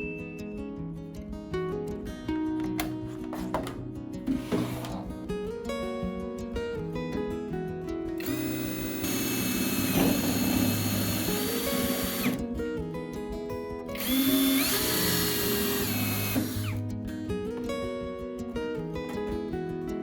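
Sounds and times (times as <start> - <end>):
electric drill running: 8.2 - 12.4, 14.0 - 16.8.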